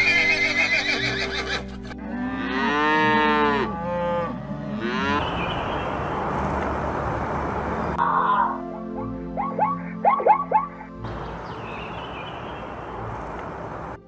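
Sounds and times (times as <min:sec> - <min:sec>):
cows mooing: 0:00.4 - 0:06.9.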